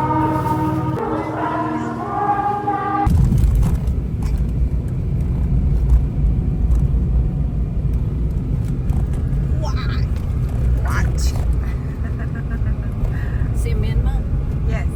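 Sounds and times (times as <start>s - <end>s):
brief pitched tone: 0.0s - 3.1s
road vehicle rumble: 0.0s - 14.9s.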